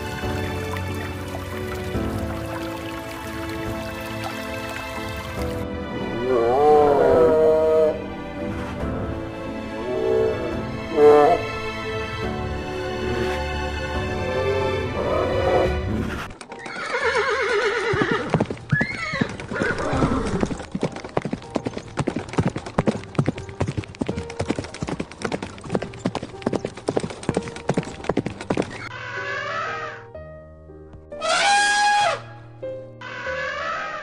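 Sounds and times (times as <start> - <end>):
animal calls: 28.7 - 30.1, 31.2 - 32.2, 33.0 - 34.0.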